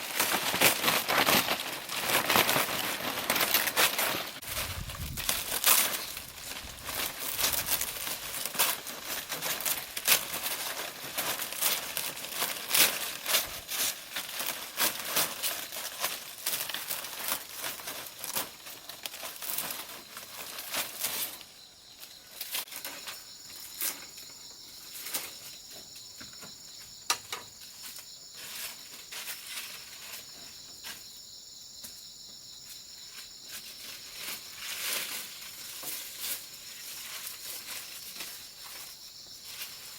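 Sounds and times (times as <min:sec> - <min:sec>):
dry leaves crackling and rustling: 0:00.0 - 0:24.2, 0:33.5 - 0:39.9
insects droning: 0:00.0 - 0:39.9.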